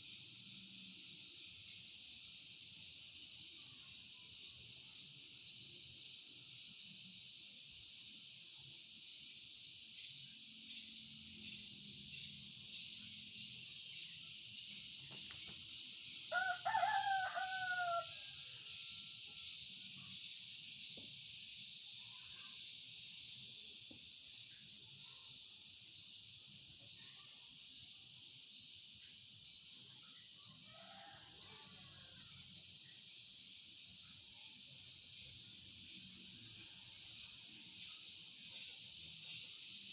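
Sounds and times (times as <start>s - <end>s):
insects droning: 0.0s - 39.9s
rooster crowing: 16.3s - 19.2s, 30.7s - 32.2s.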